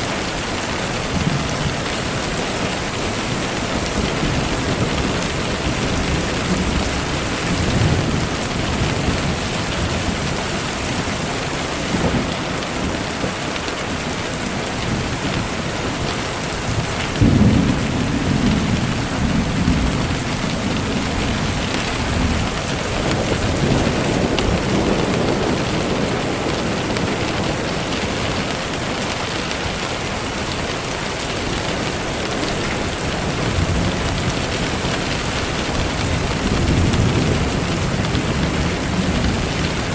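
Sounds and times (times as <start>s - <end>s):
steady rain falling: 0.0s - 39.9s
rumble of thunder: 3.3s - 13.4s, 14.8s - 29.1s, 32.7s - 39.9s.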